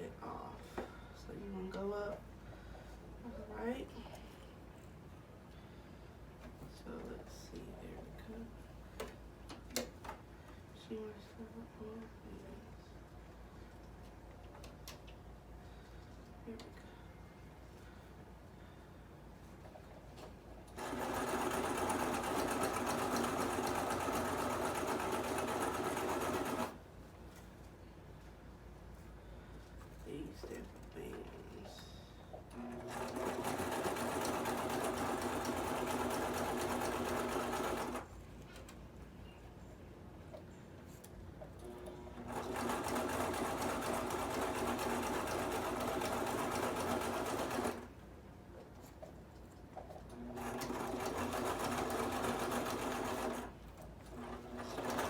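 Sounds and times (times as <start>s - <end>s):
sewing machine stitching: 20.8s - 26.8s, 32.5s - 38.0s, 42.2s - 47.9s, 50.1s - 53.5s, 54.1s - 55.0s.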